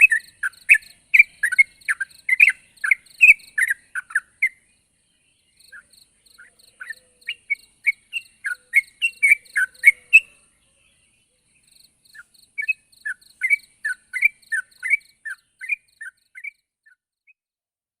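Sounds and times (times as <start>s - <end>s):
bird bubbling chirps: 0.0s - 4.6s, 5.5s - 10.4s, 12.2s - 16.6s.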